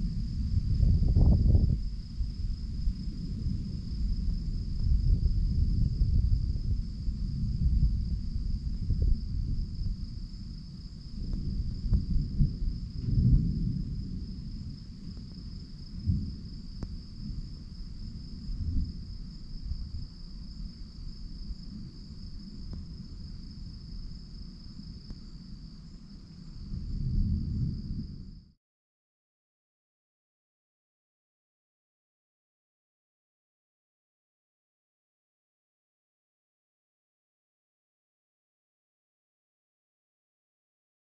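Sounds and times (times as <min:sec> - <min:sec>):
low rolling thunder: 0:00.0 - 0:28.5
night insects chorus: 0:00.0 - 0:28.5.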